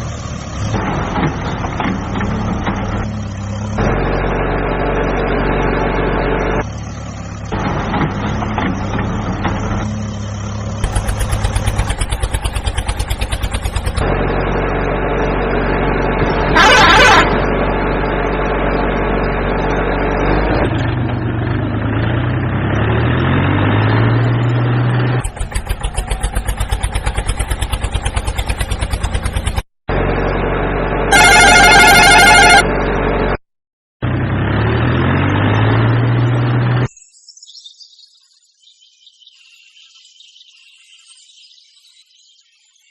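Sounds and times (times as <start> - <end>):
tractor engine revving: 0.0 - 33.4, 34.0 - 36.9
horn blasts: 16.4 - 17.6, 31.0 - 33.0.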